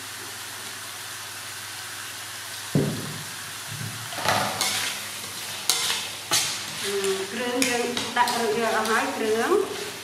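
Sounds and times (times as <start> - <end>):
paste sizzling in wok: 0.0 - 10.0
dull knock: 2.8 - 3.2
ladle scraping wok: 4.0 - 10.0.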